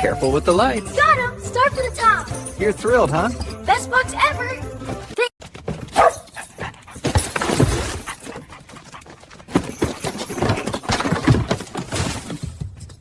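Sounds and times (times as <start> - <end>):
dog yelping: 5.9 - 6.6.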